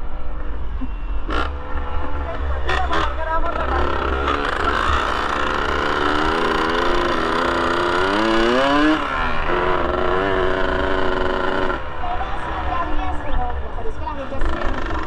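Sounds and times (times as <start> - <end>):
two-stroke motorcycle engine revving: 1.2 - 12.4, 14.2 - 15.0.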